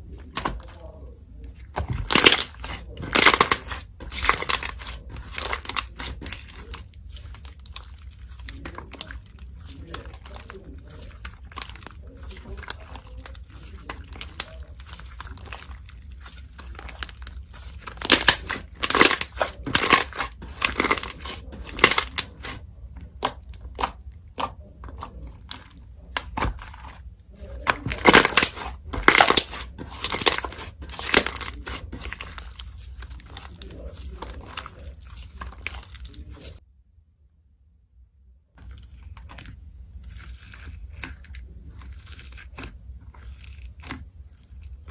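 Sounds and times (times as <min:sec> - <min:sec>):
steady low hum: 0:00.0 - 0:44.9
slime crackling and popping: 0:01.6 - 0:36.6.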